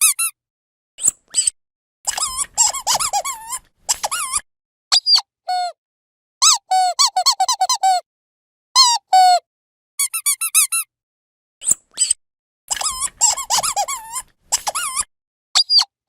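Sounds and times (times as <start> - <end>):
squeaky dog toy squeaks: 0.0 - 0.3, 2.1 - 5.8, 6.4 - 8.0, 8.8 - 9.4, 10.0 - 10.9, 11.6 - 15.9.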